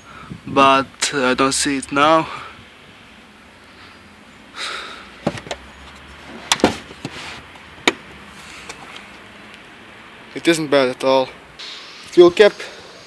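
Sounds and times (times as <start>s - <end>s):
clunks and knocks of panels: 5.2s - 5.6s, 6.5s - 8.1s
rustling: 5.2s - 9.2s.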